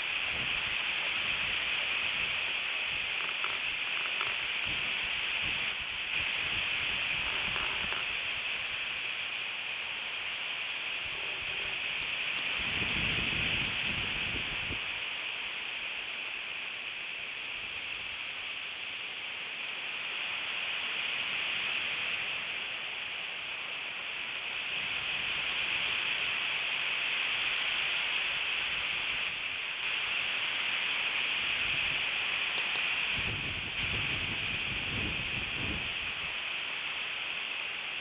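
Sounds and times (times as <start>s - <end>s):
strong wind blowing: 0.0s - 8.5s, 11.0s - 14.8s, 33.0s - 36.4s
wind buffeting microphone: 0.2s - 8.4s, 11.1s - 14.8s, 33.1s - 36.3s.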